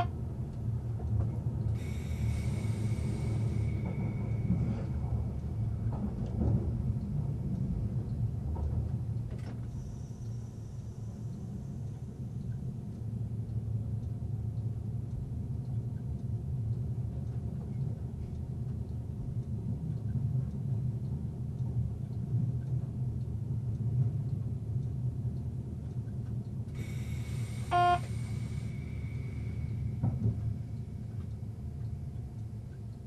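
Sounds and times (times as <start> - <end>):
train low rumble: 0.0 - 33.0
hiss: 1.8 - 4.8, 26.8 - 30.0.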